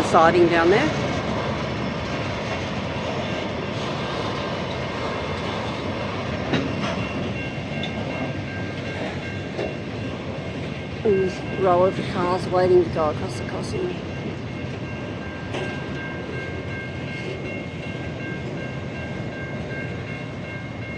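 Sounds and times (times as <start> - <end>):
train wheels rumbling on rails: 0.0 - 20.9
clacks over rail joints: 6.4 - 9.8.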